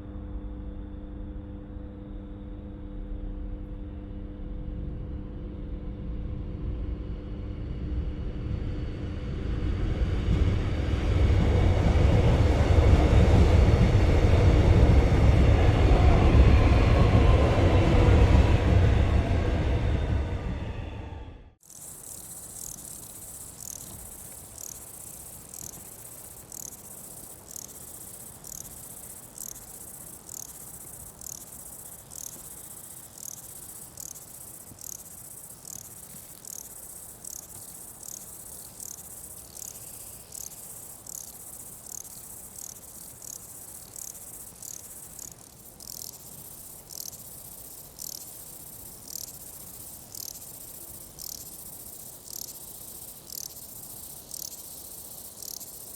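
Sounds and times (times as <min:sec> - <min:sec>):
insect chirp: 0:11.2 - 0:17.6, 0:21.6 - 0:55.9
high-pitched insect trill: 0:21.6 - 0:55.9.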